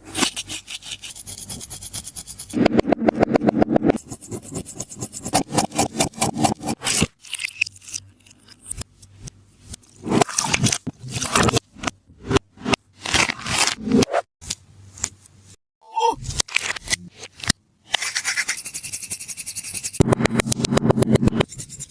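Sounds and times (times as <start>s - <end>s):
tape and paper crinkling: 16.2s - 17.5s.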